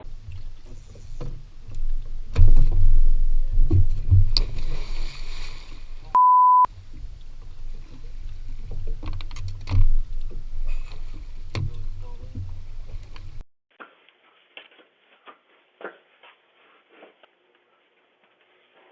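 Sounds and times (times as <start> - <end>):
low rumbling: 0.0 - 13.4
knocks and thuds: 2.3 - 4.5
steady beep: 6.1 - 6.7.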